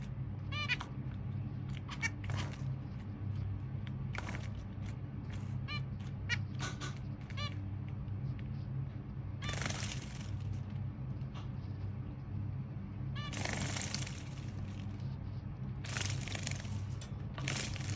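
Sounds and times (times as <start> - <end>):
finches calling: 0.0 - 1.0, 1.7 - 2.7
wing flutters: 0.0 - 7.6, 9.4 - 10.7, 13.2 - 15.1, 15.8 - 17.9.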